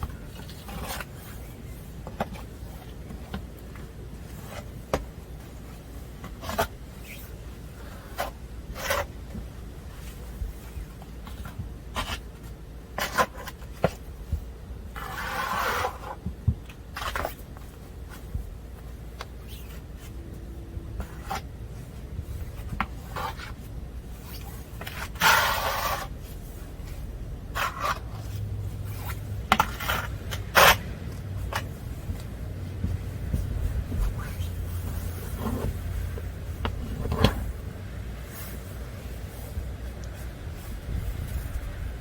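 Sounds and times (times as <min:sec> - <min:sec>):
snow scraping: 0:25.2 - 0:26.1.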